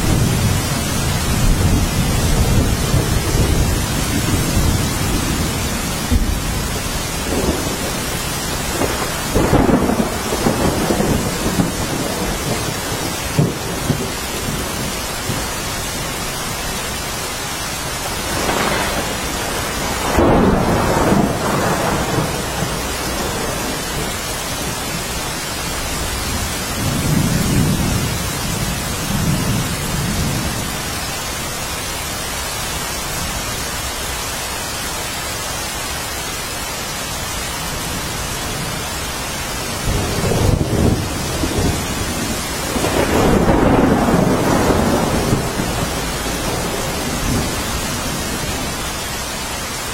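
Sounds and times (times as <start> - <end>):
rolling thunder: 0.0 - 16.3, 18.0 - 31.0, 39.5 - 49.4
rain downpour hissing: 0.0 - 49.9.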